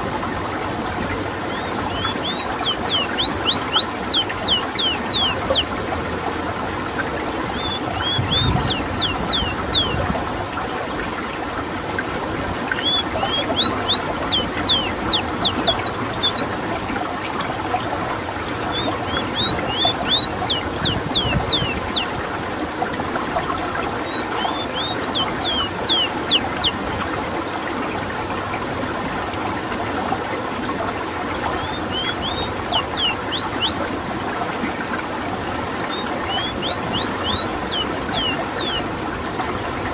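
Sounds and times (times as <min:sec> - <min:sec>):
seedeater singing: 0:12.8 - 0:16.6, 0:31.6 - 0:33.8, 0:35.9 - 0:38.9.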